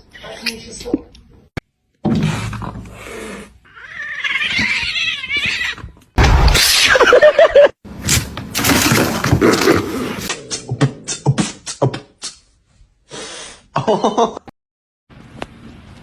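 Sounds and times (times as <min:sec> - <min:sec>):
cats meowing: 0:03.6 - 0:06.1.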